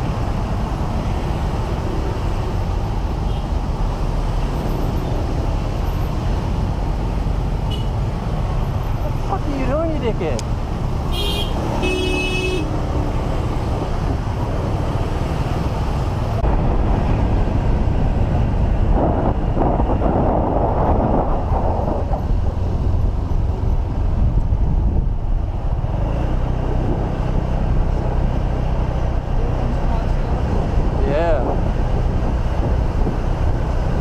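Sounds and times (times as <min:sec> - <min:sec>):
traffic and road noise: 0:00.0 - 0:34.0
vehicle horn toot: 0:07.7 - 0:07.9, 0:11.1 - 0:12.7.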